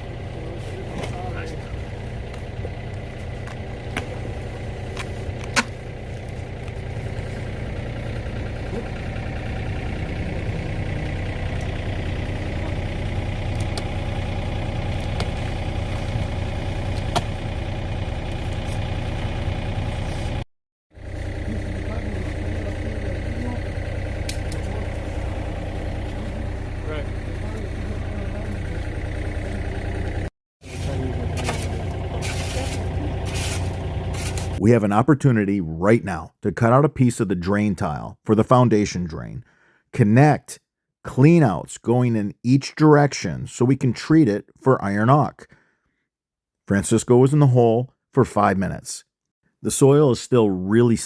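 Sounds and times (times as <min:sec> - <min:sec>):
excavator diesel engine running: 0:00.0 - 0:20.4, 0:21.0 - 0:34.8.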